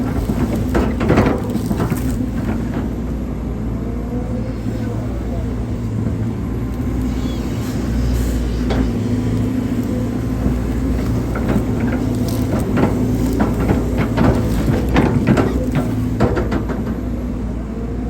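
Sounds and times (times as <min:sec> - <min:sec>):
knocks and clatters: 0:00.0 - 0:03.0, 0:10.4 - 0:17.2
excavator diesel engine: 0:00.0 - 0:18.0.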